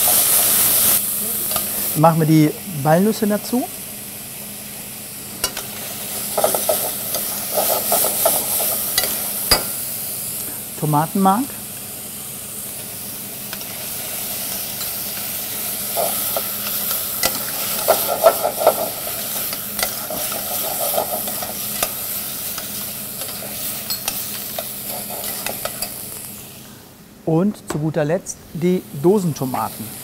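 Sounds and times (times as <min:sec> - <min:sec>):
vegetables sizzling in oil: 0:00.0 - 0:26.7, 0:28.5 - 0:30.0.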